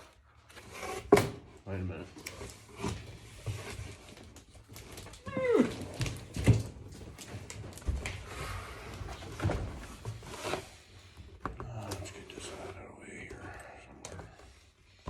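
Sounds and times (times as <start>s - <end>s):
cardboard packaging rustling: 2.1s - 12.6s
pet whining cry: 5.2s - 6.1s.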